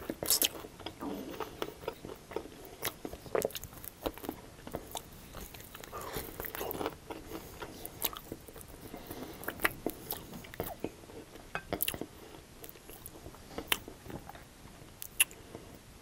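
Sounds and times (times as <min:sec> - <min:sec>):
wet mouth sounds: 0:00.0 - 0:02.1, 0:15.0 - 0:15.4
chewing crunchy chicken: 0:00.0 - 0:15.6.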